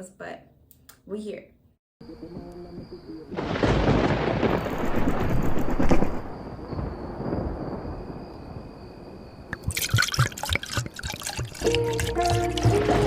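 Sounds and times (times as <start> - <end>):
storm-like rumble: 2.8 - 9.5.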